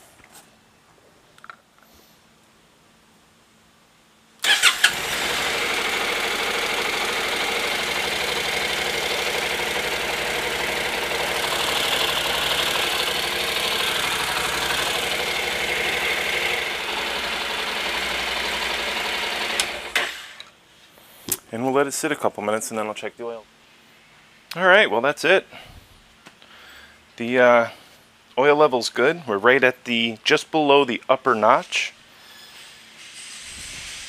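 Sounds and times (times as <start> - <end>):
motorcycle engine idling: 4.6 - 20.0.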